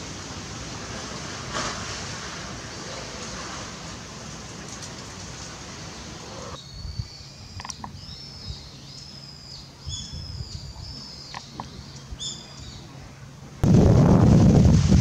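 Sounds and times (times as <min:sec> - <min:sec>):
small birds chirping: 0:05.9 - 0:12.9
wind buffeting microphone: 0:09.8 - 0:12.2, 0:13.6 - 0:15.0.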